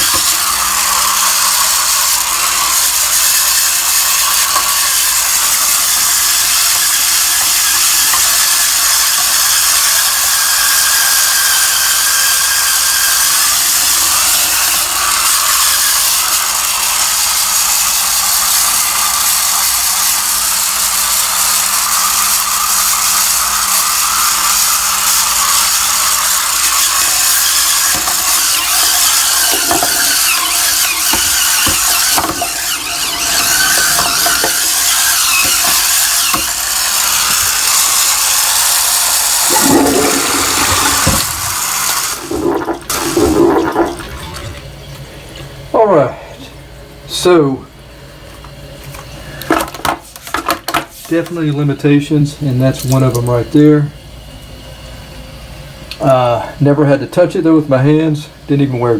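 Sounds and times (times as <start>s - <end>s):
scrubber motor whining: 0.0s - 45.0s.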